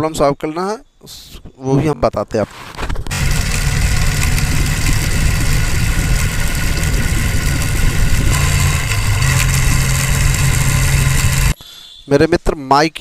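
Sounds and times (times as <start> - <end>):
motorcycle engine idling: 3.1 - 11.6.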